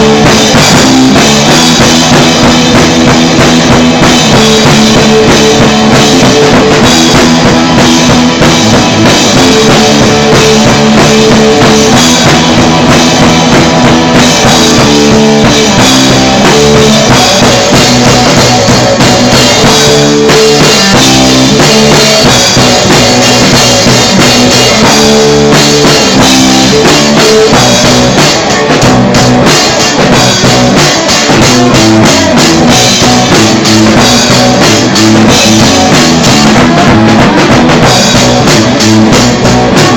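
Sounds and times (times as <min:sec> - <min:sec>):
punk rock band playing: 0:00.0 - 0:39.9.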